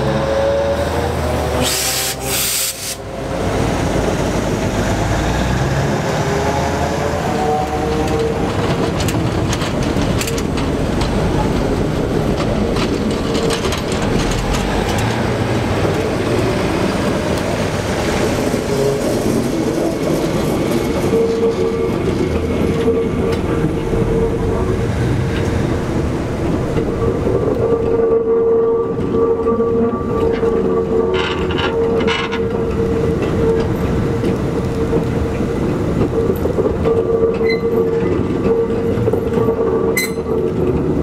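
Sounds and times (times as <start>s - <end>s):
train wheels rumbling on rails: 0.0s - 41.0s
clicks and clanks: 7.9s - 11.6s, 12.3s - 15.2s, 30.2s - 40.9s.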